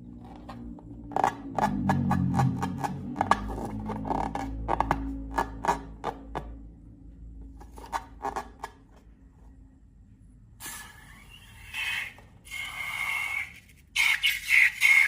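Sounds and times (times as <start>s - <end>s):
rubbery scraping with squeak: 0.2s - 6.3s, 7.6s - 9.1s, 10.6s - 15.0s.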